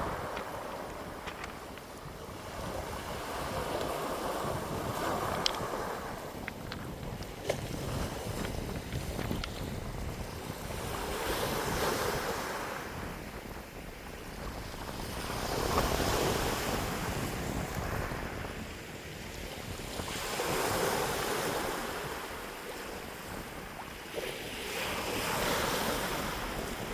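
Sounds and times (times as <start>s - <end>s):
wind gusts: 0.0s - 26.9s
wind rumble on microphone: 0.0s - 26.9s.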